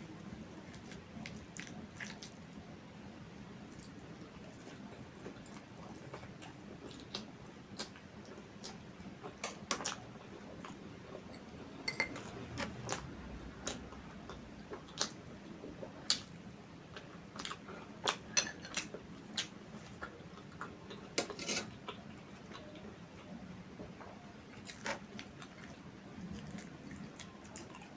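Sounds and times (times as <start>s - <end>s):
cutlery tapping on plate: 11.9s - 12.3s.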